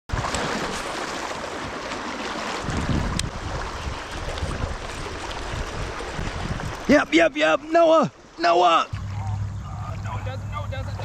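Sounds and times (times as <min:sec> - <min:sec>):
rushing river water: 0:00.1 - 0:10.3
wind buffeting microphone: 0:02.6 - 0:07.1.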